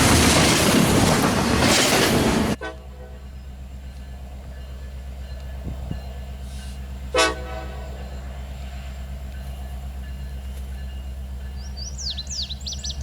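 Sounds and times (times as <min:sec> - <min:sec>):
train rumbling: 0:00.0 - 0:13.0
locomotive horn toot: 0:02.5 - 0:03.5, 0:06.4 - 0:08.4.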